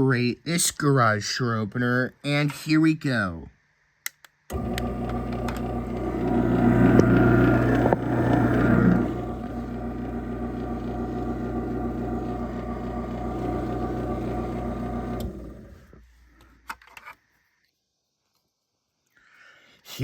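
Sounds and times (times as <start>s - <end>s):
sharp clicks: 4.0s - 8.5s
garage door opener motor hum: 4.5s - 16.0s.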